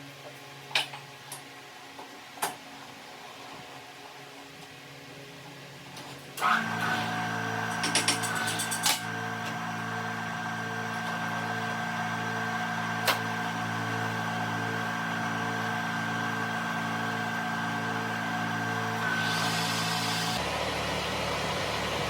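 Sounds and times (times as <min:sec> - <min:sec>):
electric motor humming and whining: 0:06.4 - 0:22.0.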